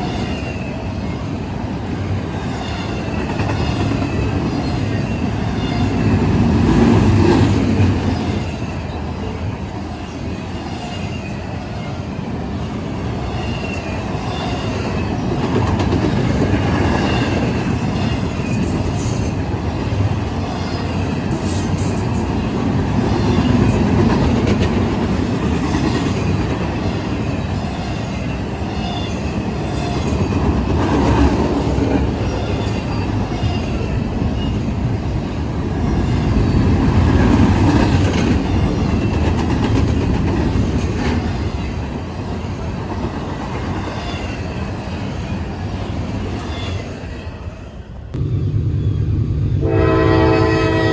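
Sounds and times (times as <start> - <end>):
train wheels rumbling on rail: 0.0 - 50.9.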